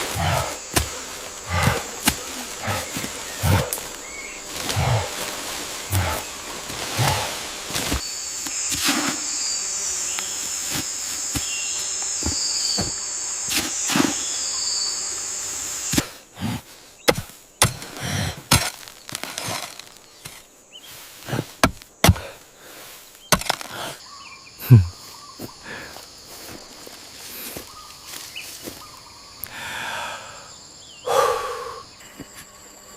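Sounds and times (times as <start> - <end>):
chopping and hammering: 0.0 - 5.3, 5.9 - 9.2, 10.7 - 14.3, 17.1 - 20.4, 21.3 - 22.4, 23.3 - 23.9
high insect drone: 0.0 - 32.9.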